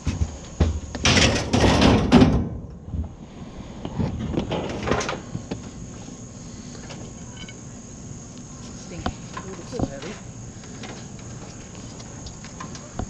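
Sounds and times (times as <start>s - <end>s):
scrap scraping rattle: 3.9s - 5.3s.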